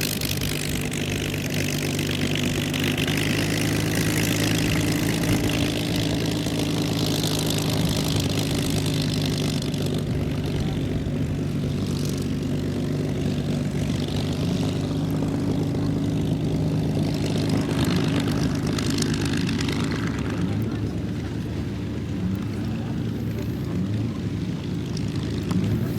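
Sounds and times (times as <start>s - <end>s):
propeller plane engine drone: 0.0s - 25.9s.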